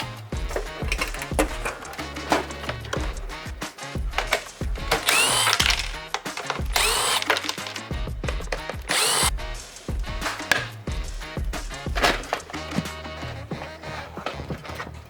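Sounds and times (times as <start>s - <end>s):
background music with beat: 0.0s - 15.0s
small power tool spinning: 0.5s - 9.4s.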